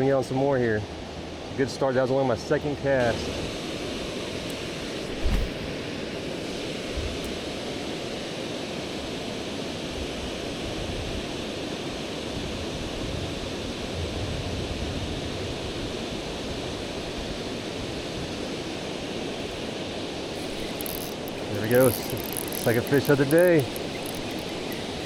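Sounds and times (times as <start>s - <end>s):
river current rushing: 18.4s - 25.0s.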